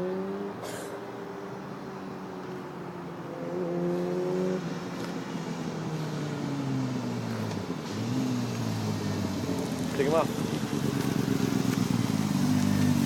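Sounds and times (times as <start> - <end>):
motorcycle engine revving: 3.3 - 13.0.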